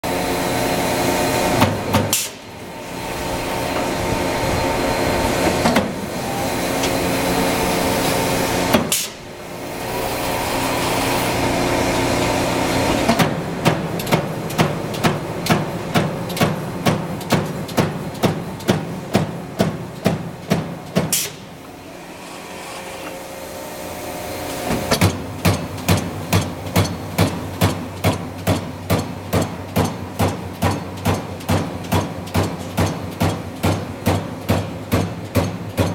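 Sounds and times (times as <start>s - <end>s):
machine hum: 0.0s - 20.5s.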